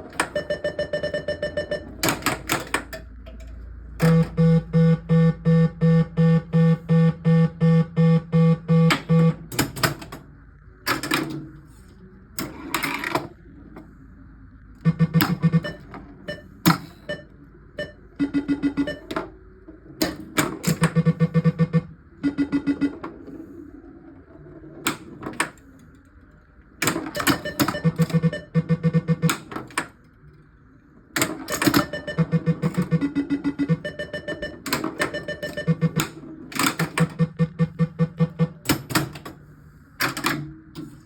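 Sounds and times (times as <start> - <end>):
mechanical clacks of pinball: 1.6 - 4.2, 8.8 - 11.6, 12.4 - 13.4, 19.9 - 23.3, 24.8 - 26.1, 26.8 - 28.4, 29.0 - 30.1, 31.1 - 39.4, 40.0 - 41.0
pulsed electronic tones: 14.8 - 19.2, 20.8 - 23.3, 27.2 - 29.3, 31.6 - 36.2, 37.0 - 38.6.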